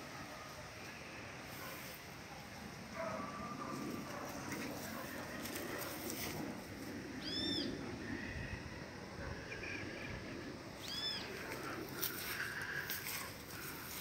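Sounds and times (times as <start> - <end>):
low background noise: 0.0 - 14.0
bird calling: 7.2 - 8.2, 10.8 - 13.4.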